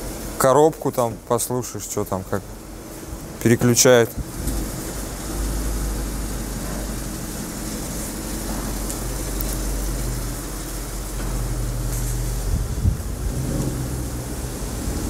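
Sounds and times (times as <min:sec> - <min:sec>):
suv engine low drone: 0:04.2 - 0:15.0.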